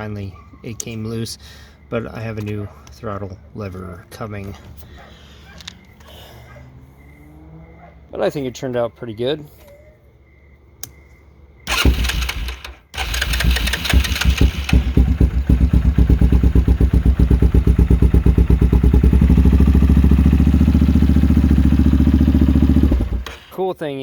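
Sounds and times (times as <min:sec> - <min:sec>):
atv engine idling: 0:11.7 - 0:23.6.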